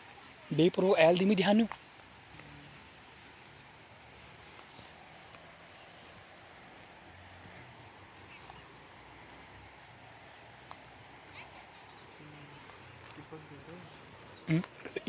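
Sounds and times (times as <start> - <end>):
faint outdoor background noise: 0.0 - 15.0
insects chirring: 0.0 - 15.0.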